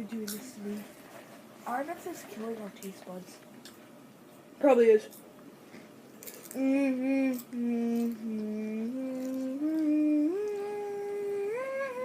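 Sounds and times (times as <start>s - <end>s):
person humming a tune: 6.5s - 12.0s.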